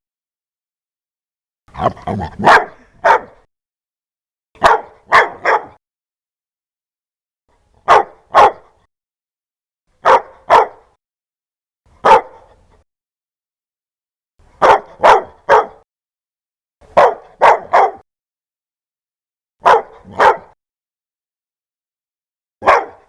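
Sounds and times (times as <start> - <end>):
dog barking: 1.8 - 3.5, 4.6 - 5.8, 7.8 - 8.9, 10.0 - 11.0, 12.0 - 12.6, 14.6 - 15.8, 16.9 - 18.0, 19.6 - 20.6, 22.6 - 23.0.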